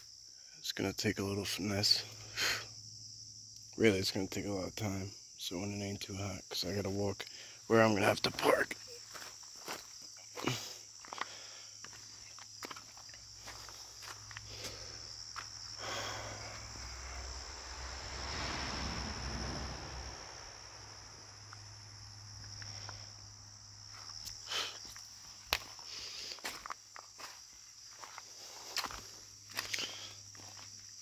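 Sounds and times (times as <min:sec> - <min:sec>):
high-pitched insect chorus: 0:00.0 - 0:31.0
footsteps crunching through brush: 0:08.2 - 0:16.2, 0:23.8 - 0:31.0
broad rushing noise: 0:15.9 - 0:21.8.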